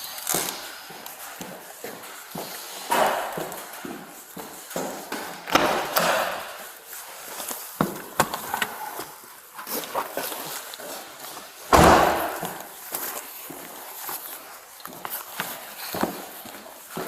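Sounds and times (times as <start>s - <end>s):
footsteps: 0.0s - 17.0s
heavy door slams with echo: 5.5s - 6.6s, 11.7s - 12.6s.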